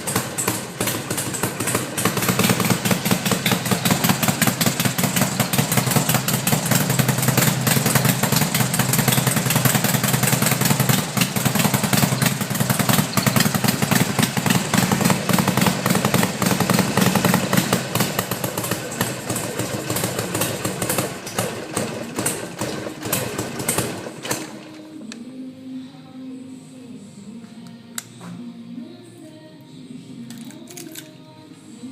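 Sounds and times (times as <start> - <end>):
motorcycle engine running: 0.0 - 24.8.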